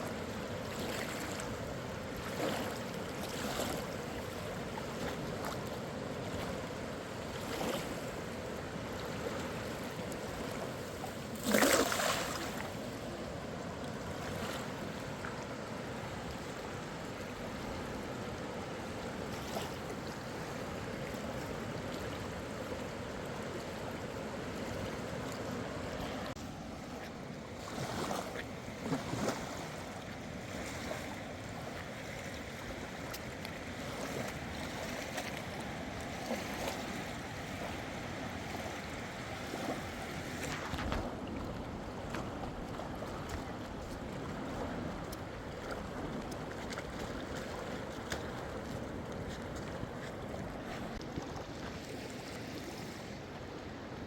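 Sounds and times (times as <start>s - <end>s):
fast-flowing river: 0.0s - 54.0s.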